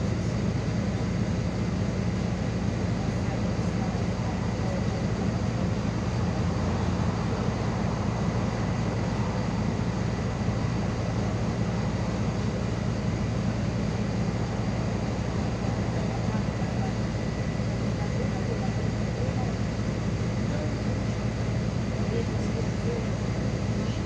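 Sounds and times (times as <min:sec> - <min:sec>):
bus engine and road rumble: 0:00.0 - 0:24.0.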